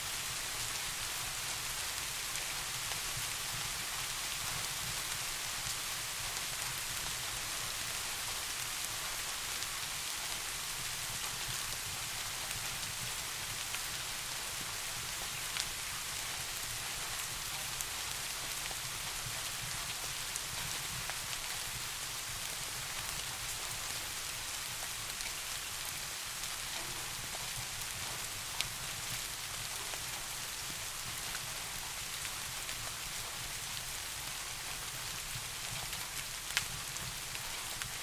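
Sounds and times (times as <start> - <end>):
steady rain: 0.0 - 38.0.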